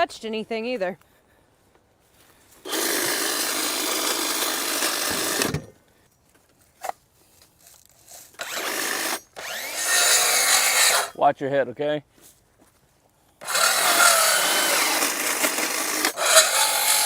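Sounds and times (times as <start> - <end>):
power saw cutting branches: 2.6 - 5.8, 8.0 - 11.2, 13.4 - 17.0.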